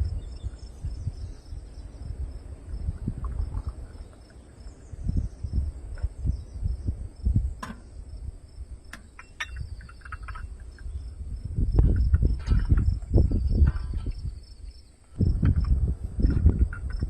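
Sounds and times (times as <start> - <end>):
crickets chirping: 0.0 - 17.0
low rumbling thumps: 4.9 - 8.9, 9.6 - 14.6, 15.2 - 17.0.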